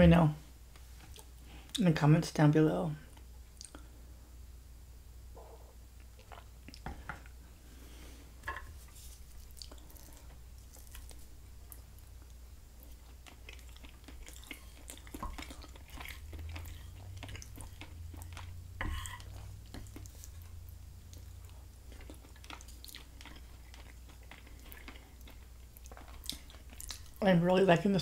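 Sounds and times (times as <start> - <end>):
steady low hum: 0.0 - 28.0
soft mouth clicks: 3.6 - 3.8
chewing and biting food: 9.3 - 27.2.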